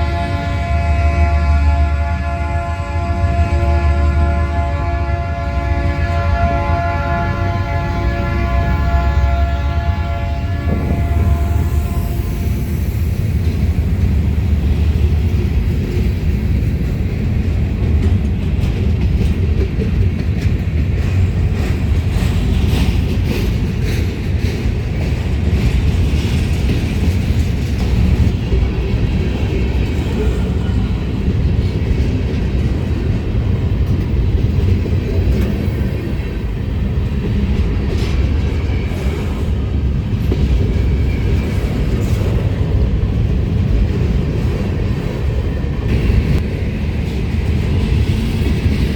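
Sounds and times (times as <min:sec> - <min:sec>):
freight train rumbling past: 0:00.0 - 0:48.9
wheels clanking over rail joints: 0:13.2 - 0:48.9.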